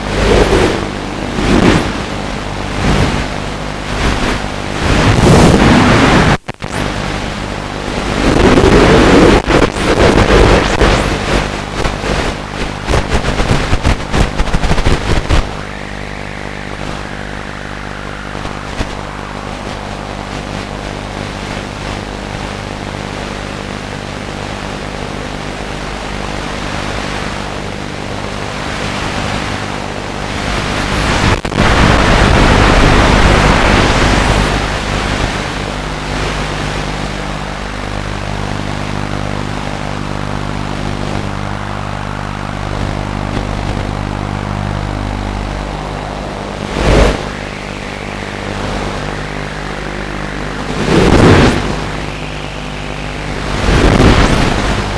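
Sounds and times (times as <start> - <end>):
rush of air: 0.0 - 6.4, 40.1 - 54.9
wind buffeting on microphone: 0.0 - 7.0, 7.8 - 23.0, 28.9 - 54.9.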